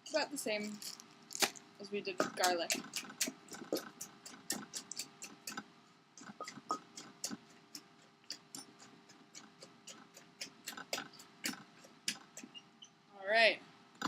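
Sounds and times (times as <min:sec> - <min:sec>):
pestle pounding in a mortar: 0:02.2 - 0:05.6, 0:06.2 - 0:12.6.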